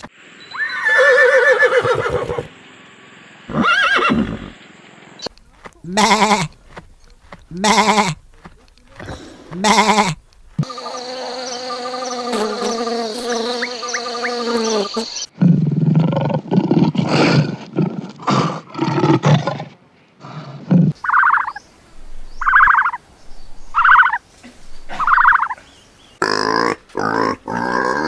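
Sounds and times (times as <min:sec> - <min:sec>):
short raspy animal calls: 0:05.6 - 0:11.5, 0:23.8 - 0:25.6
long held bleat: 0:05.8 - 0:06.6, 0:07.5 - 0:08.2, 0:08.9 - 0:10.2
loud low pulsing animal calls: 0:20.8 - 0:28.0.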